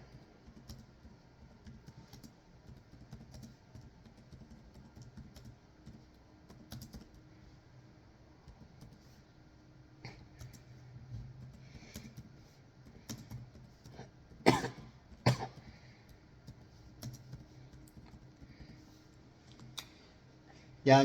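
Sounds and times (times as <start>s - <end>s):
keyboard typing clicks: 0.1s - 7.2s, 12.9s - 13.9s, 15.1s - 18.8s
man coughing: 14.4s - 15.6s.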